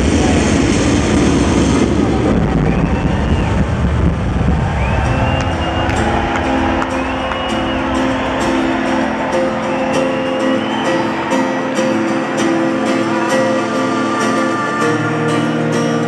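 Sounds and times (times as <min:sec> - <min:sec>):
strummed guitar: 0:05.0 - 0:16.0.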